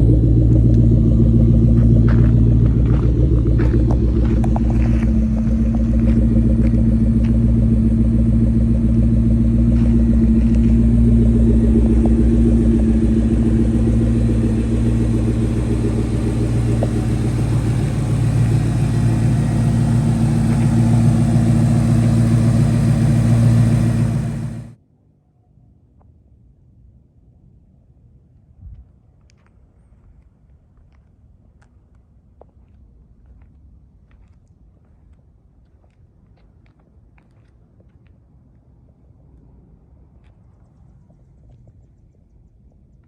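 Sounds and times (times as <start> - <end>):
car engine idling: 0.0 - 24.8.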